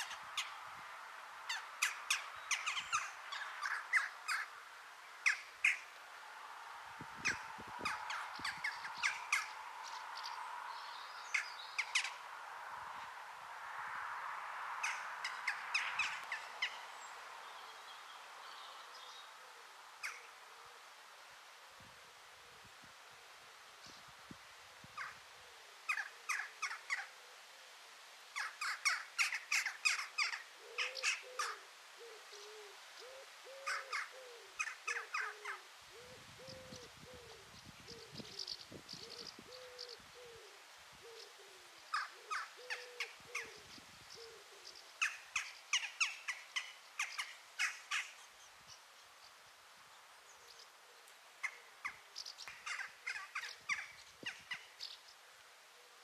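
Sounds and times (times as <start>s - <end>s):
birds chirping rapidly: 1.5s - 5.9s, 7.2s - 12.3s, 14.8s - 19.3s, 41.1s - 49.4s, 51.4s - 55.2s.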